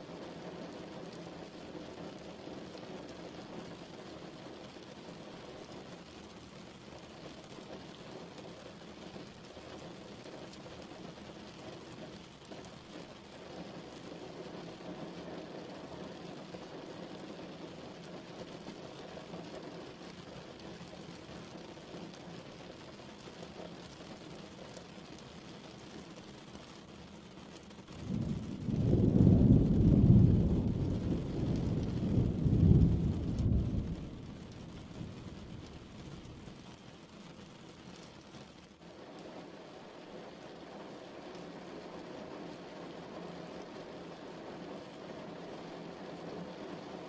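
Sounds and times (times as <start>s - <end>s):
steady rain patter: 0.0s - 47.0s.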